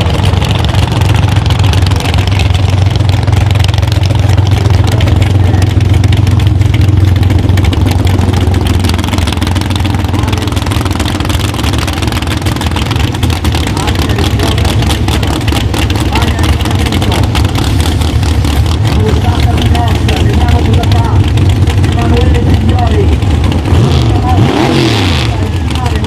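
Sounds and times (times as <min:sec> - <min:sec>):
car engine lumpy idle: 0:00.0 - 0:26.0.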